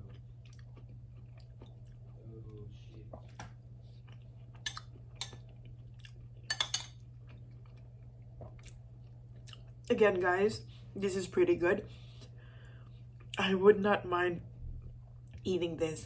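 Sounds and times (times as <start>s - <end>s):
soft chewing: 0.0s - 9.9s, 11.8s - 13.5s, 14.5s - 15.5s
steady low hum: 0.0s - 16.0s.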